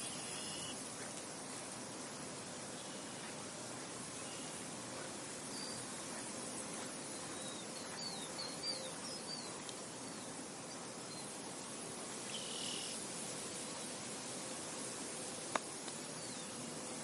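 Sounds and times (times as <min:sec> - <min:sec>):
wind: 0:00.0 - 0:17.0
small bird chirping: 0:07.0 - 0:10.3.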